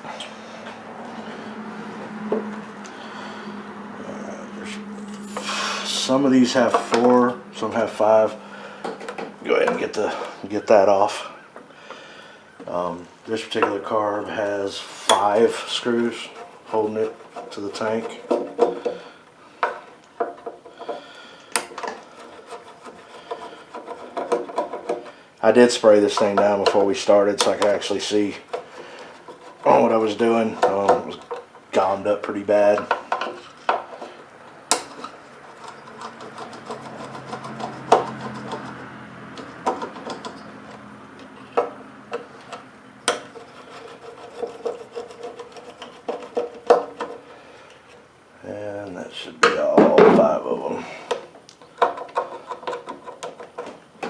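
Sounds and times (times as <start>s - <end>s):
tool scraping and rubbing: 0.0s - 11.7s, 12.6s - 48.1s, 51.9s - 54.0s.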